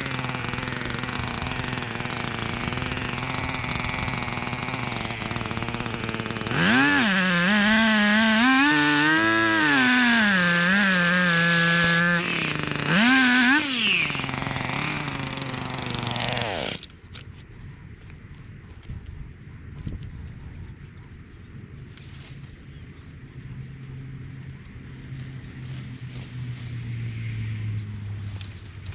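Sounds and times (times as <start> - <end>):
small engine revving: 0.0 - 17.1, 24.2 - 28.9.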